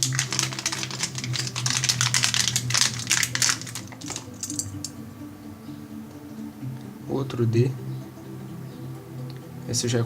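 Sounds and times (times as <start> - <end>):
plastic keycaps clattering: 0.0 - 4.9.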